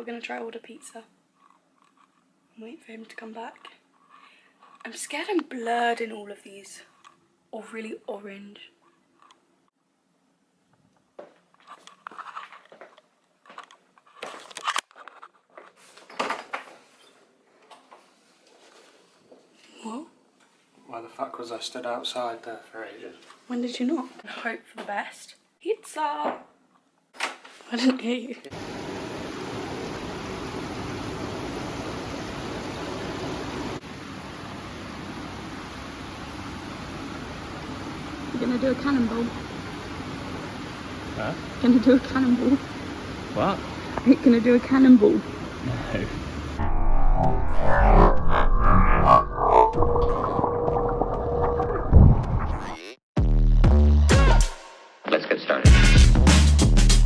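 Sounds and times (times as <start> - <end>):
steady rushing noise: 45.3 - 49.0.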